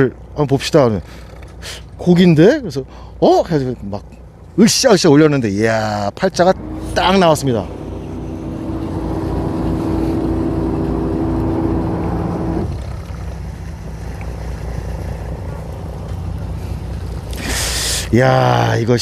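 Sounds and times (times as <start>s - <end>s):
boat engine rumbling: 0.0s - 19.0s
high steady hum: 6.4s - 13.0s.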